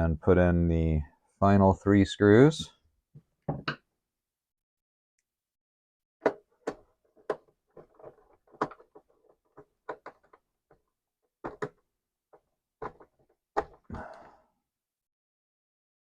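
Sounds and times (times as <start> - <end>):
clicks and taps on plastic case: 6.2 - 10.4, 11.4 - 11.8, 12.8 - 13.8.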